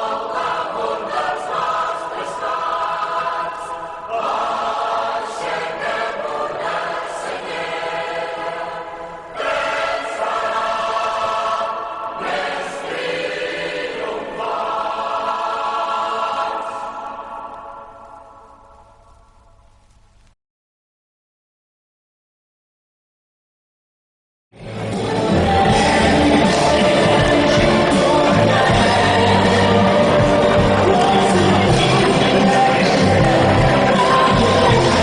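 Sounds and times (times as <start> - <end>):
choir singing sustained chords: 0.0 - 19.3, 24.6 - 35.0.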